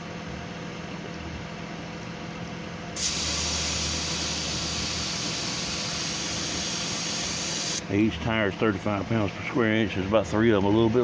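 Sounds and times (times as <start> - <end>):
steady low hum: 0.0 - 11.0
air hissing from tire valve: 3.0 - 7.8.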